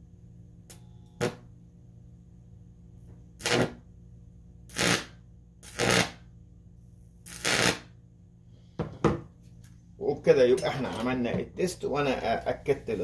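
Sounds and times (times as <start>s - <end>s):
low electrical hum: 0.0s - 13.0s
loud crackling electrical buzzes: 0.6s - 1.5s, 3.3s - 3.9s, 4.7s - 6.3s, 7.2s - 8.0s.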